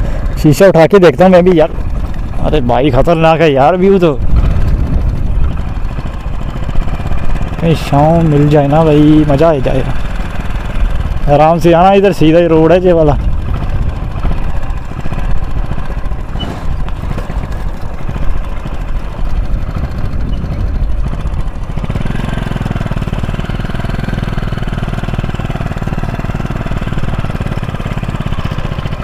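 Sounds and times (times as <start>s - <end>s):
motorcycle engine running: 0.0s - 29.0s
wind rumbling on microphone: 4.0s - 7.2s, 13.1s - 22.2s.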